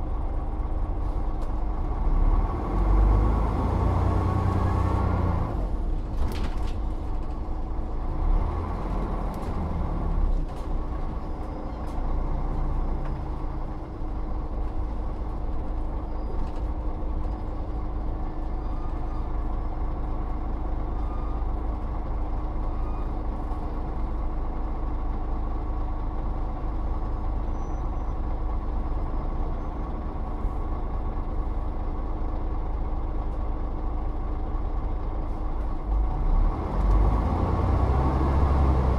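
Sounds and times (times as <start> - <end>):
bus engine drone: 0.0 - 38.9.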